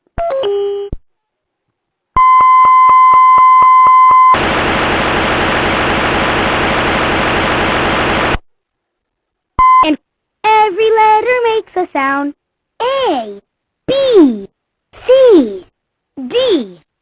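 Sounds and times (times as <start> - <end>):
regular electronic clicks: 2.2 - 4.4
white noise hiss: 4.2 - 13.9.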